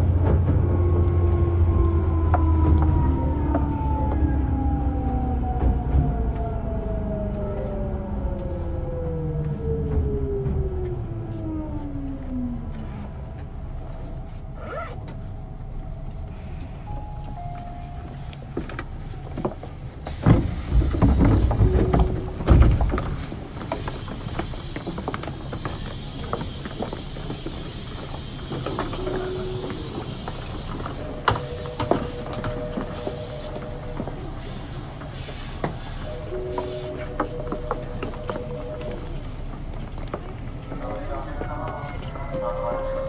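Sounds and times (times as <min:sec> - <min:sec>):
low rumbling and knocks: 0:00.0 - 0:12.7, 0:18.5 - 0:41.0
train whine falling in pitch: 0:28.6 - 0:39.5
air hiss: 0:34.3 - 0:37.1
two-note tone: 0:36.0 - 0:39.3.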